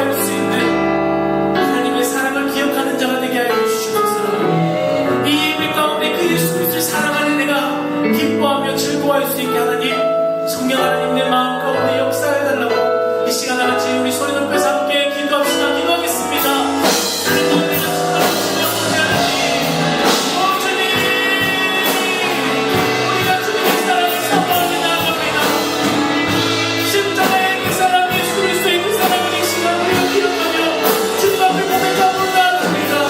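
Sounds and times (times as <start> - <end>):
voices singing together: 4.2 - 5.8, 17.2 - 31.9
band with drums playing: 16.0 - 33.0.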